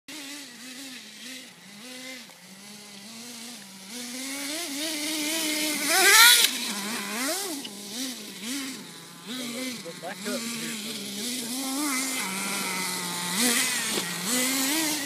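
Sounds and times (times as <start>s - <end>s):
rc truck motor revving: 0.1s - 15.0s.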